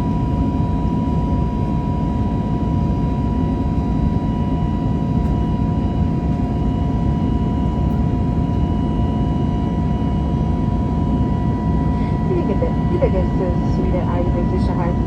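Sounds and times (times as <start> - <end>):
jet engines rumble and hiss: 7.7 - 15.0
whining engine tones: 11.9 - 15.0.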